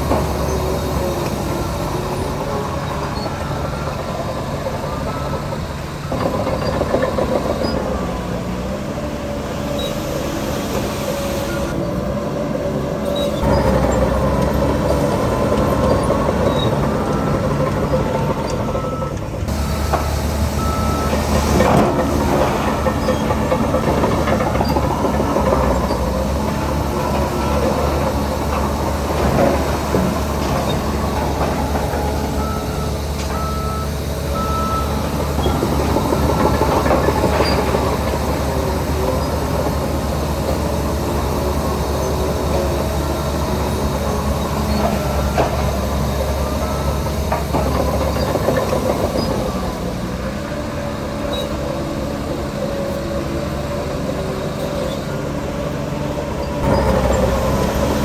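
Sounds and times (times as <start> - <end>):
heavy diesel machinery engines: 0.0 - 58.0
reversing beeps: 2.1 - 7.8, 15.9 - 23.4, 29.4 - 38.1, 43.8 - 49.3.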